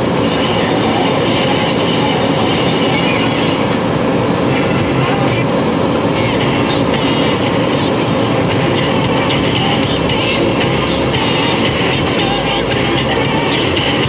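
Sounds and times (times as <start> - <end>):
car stereo playing radio: 0.0 - 14.0.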